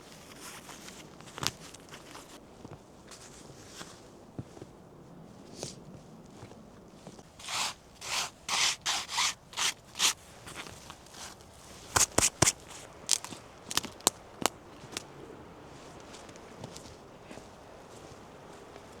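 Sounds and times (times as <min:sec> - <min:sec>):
rasping scraping strokes on wood: 0:07.4 - 0:10.6.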